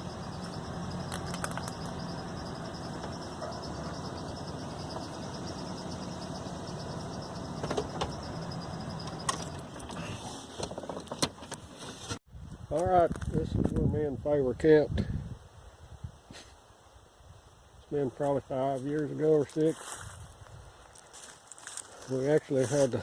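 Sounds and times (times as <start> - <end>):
vehicle engine humming: 0.0 - 11.7.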